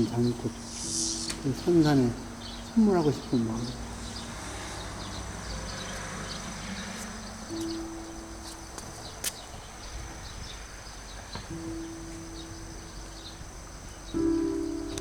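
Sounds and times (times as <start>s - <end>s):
low held tone: 0.0s - 9.5s
crickets chirping: 0.0s - 15.0s.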